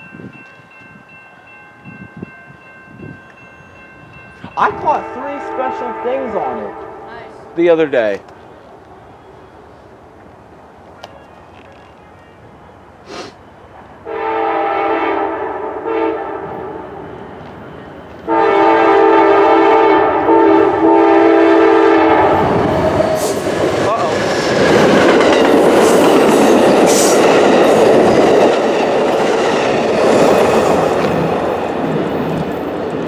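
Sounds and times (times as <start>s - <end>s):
train horn chord: 4.7s - 7.6s, 14.0s - 17.0s, 18.3s - 23.0s
train wheels clattering over rail joints: 22.4s - 33.0s.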